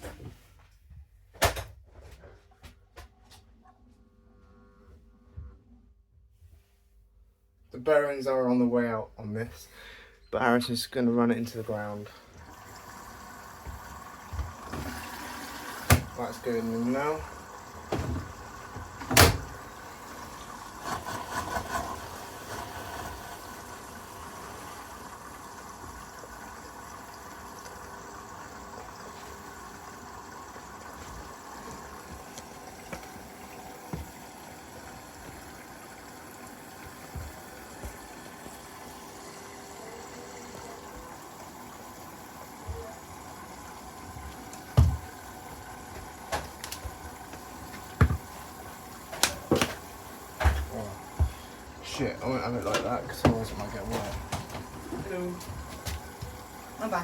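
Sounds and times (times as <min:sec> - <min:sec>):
washing machine filling with water: 0:10.4 - 0:57.0
washing machine knocks: 0:15.8 - 0:16.2, 0:17.2 - 0:19.6, 0:44.7 - 0:45.2, 0:47.9 - 0:48.4, 0:49.2 - 0:51.5, 0:52.6 - 0:56.5
washing machine click: 0:19.0 - 0:19.6, 0:49.2 - 0:49.9.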